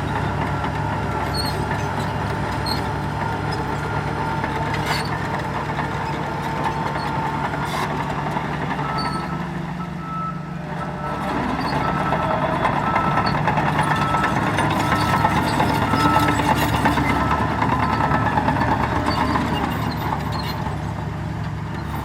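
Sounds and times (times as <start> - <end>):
heavy diesel machinery running: 0.0 - 22.0
reversing alarm beeping: 8.8 - 18.5.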